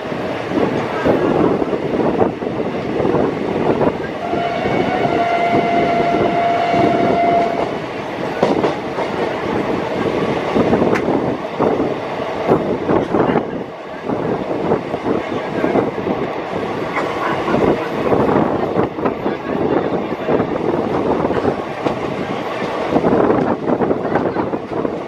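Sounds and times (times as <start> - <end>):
train wheels rumbling on rails: 0.0 - 25.0
train horn: 4.2 - 7.8.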